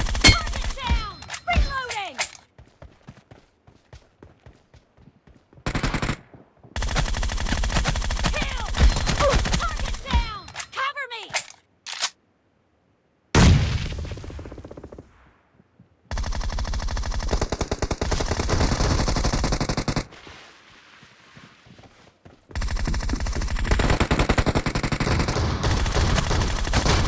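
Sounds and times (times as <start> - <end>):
automatic gunfire bursts: 5.6 - 6.2, 22.6 - 27.0.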